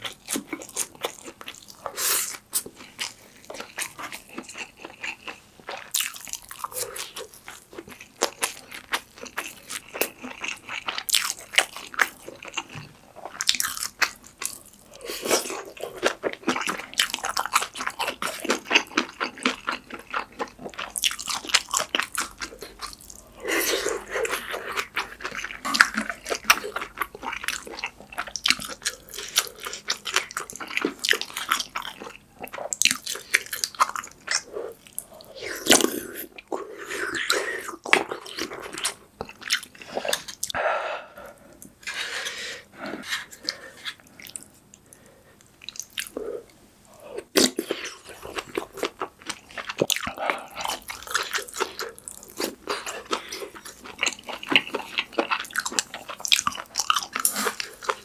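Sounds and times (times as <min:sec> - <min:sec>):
wet chewing and smacking: 0:00.0 - 0:40.6, 0:47.2 - 0:58.0.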